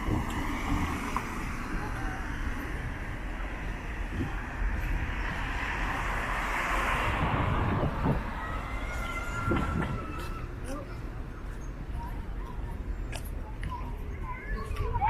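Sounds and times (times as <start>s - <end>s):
city street traffic: 0.0s - 15.0s
vehicle passing close by: 4.2s - 8.7s.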